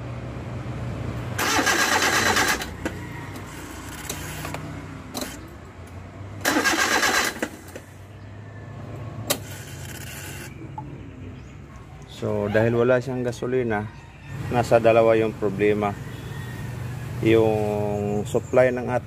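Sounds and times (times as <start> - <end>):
engine starter cranking: 1.4 - 5.5, 6.4 - 7.9, 9.3 - 10.6.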